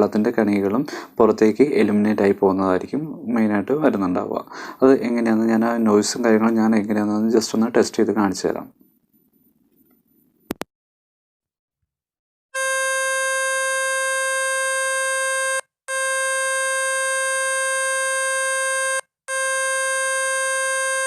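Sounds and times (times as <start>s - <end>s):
loud buzzy beep tone: 12.6s - 21.0s.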